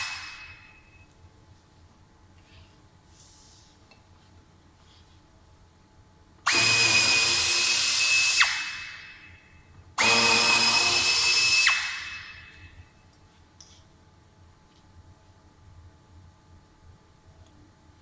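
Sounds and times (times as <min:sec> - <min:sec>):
cordless drill whining: 0:06.5 - 0:08.6, 0:10.0 - 0:12.0.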